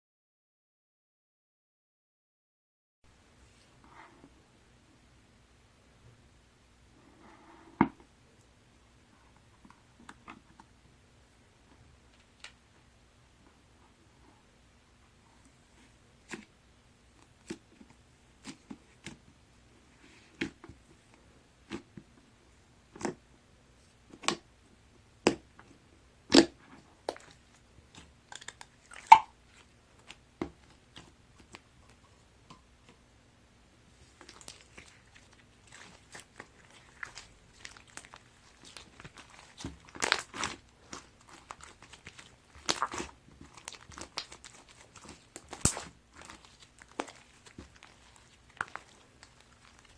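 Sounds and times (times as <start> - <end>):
snow slime crunching and crackling: 34.0 - 49.9.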